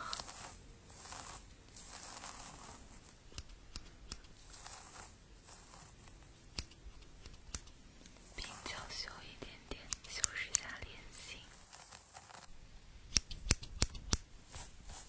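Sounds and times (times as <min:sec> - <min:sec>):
material crinkling and rustling: 0:00.0 - 0:09.3, 0:11.4 - 0:15.0
light clicks: 0:03.2 - 0:04.4, 0:06.5 - 0:08.2, 0:09.4 - 0:10.9, 0:13.1 - 0:14.3.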